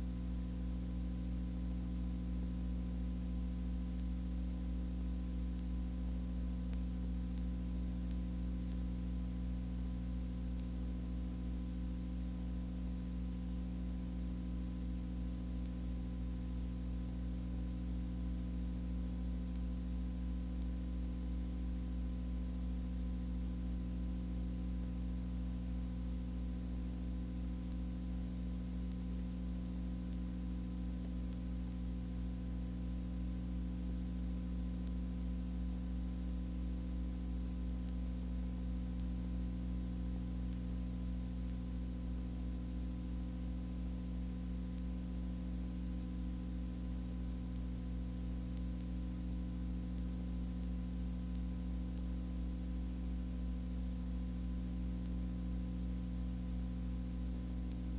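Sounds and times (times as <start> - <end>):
low steady hum: 0.0 - 57.9.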